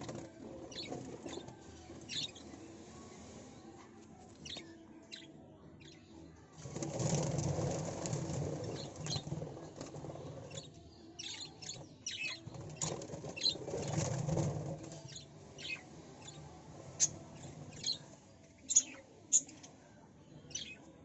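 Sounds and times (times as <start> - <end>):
bird chirping: 0.1 - 2.6, 4.4 - 6.4, 10.2 - 21.0.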